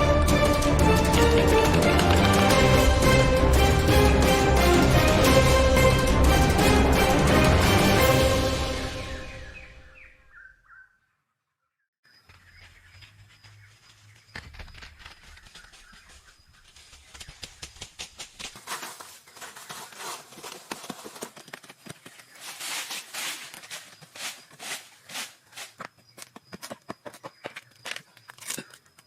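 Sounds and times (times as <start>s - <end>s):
dry material crunching and scraping: 18.4s - 21.5s, 22.2s - 25.8s.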